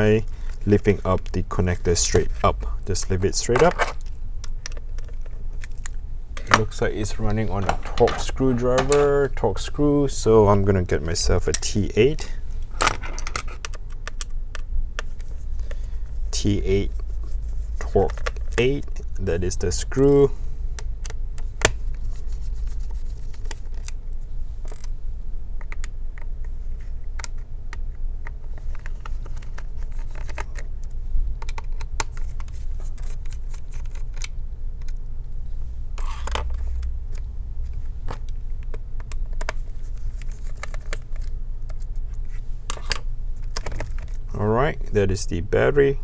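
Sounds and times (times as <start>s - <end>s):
low hum: 0.0s - 13.7s, 35.0s - 42.2s
screwdriver clicking and scraping: 6.4s - 9.2s.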